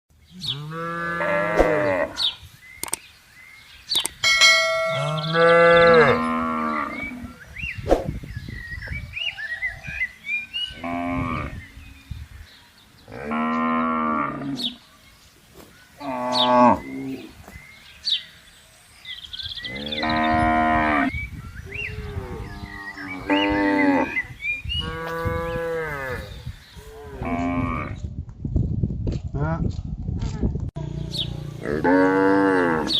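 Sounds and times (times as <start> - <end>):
cattle mooing: 4.9 - 7.4, 31.6 - 32.9.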